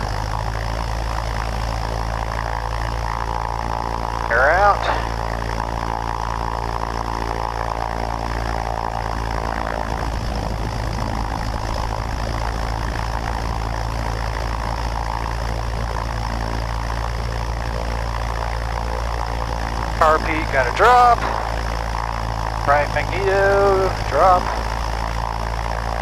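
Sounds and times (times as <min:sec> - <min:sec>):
propeller plane engine drone: 0:00.0 - 0:26.0.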